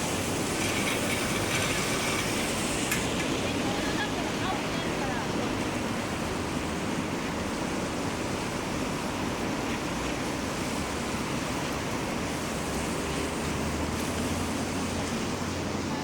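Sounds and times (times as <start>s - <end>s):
heavy rain hissing: 0.0s - 16.0s.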